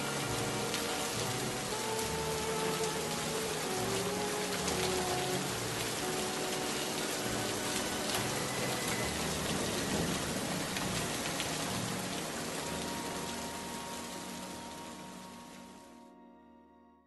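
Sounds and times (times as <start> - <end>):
rain falling steadily: 0.0 - 16.3.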